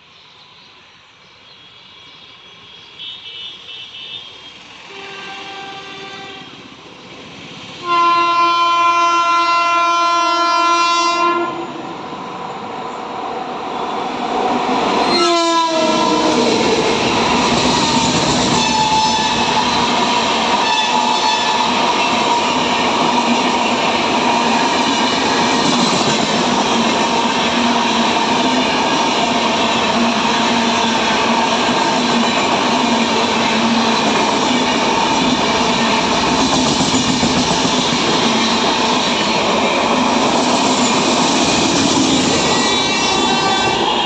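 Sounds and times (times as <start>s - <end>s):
train horn blasts: 3.0s - 6.6s, 7.8s - 11.9s, 15.0s - 16.5s, 18.5s - 19.6s, 20.6s - 21.6s, 42.5s - 44.0s
train wheels rumbling on rails: 4.1s - 44.0s.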